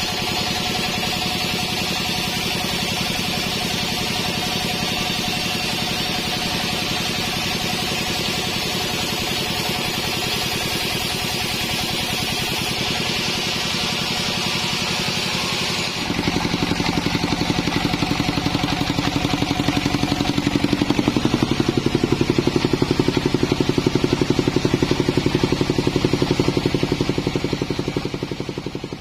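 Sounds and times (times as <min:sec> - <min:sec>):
saw cutting hiss: 0:00.0 - 0:28.5
sawmill engine pulsing: 0:00.0 - 0:29.0.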